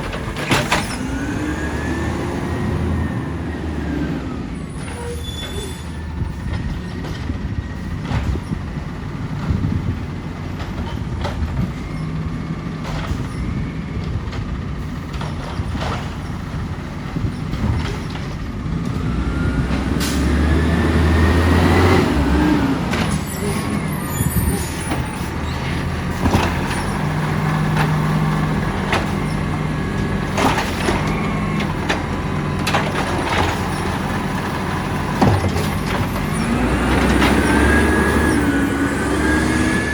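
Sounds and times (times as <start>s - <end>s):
garbage truck diesel engine: 0.0s - 39.9s.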